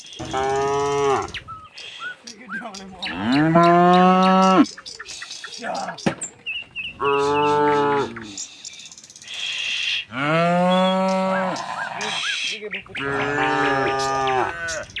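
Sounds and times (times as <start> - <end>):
cattle mooing: 0.2 - 1.4, 3.0 - 4.7, 7.0 - 8.4, 10.1 - 12.3, 12.9 - 14.9.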